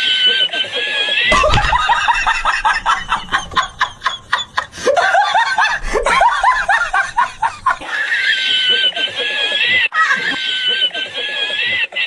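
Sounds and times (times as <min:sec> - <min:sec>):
high-pitched laughter: 0:04.0 - 0:12.0.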